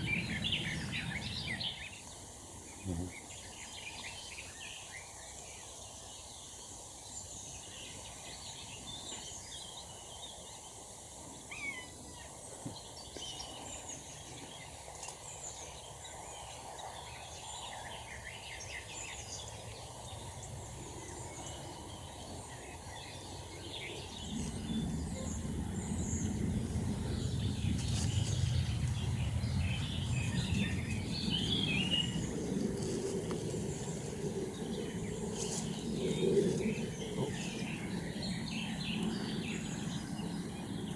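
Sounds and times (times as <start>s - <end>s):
birds chirping: 0.0s - 40.9s
outdoor background noise: 0.0s - 40.9s
low rumble: 24.1s - 40.8s.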